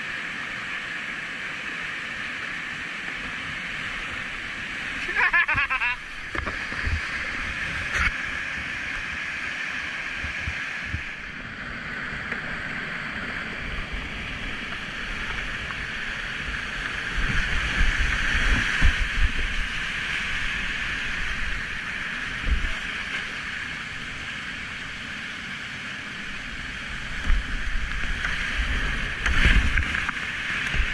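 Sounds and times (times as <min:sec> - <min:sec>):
river rapids rushing: 0:00.0 - 0:30.9
wind thumps on microphone: 0:10.2 - 0:11.2, 0:17.0 - 0:19.7.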